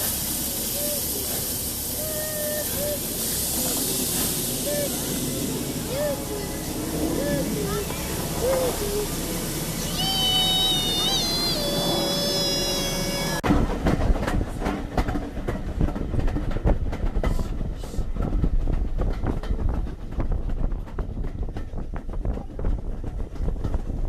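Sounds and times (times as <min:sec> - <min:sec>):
steam locomotive hissing: 0:00.0 - 0:13.4
train carriage rumble: 0:00.0 - 0:24.0.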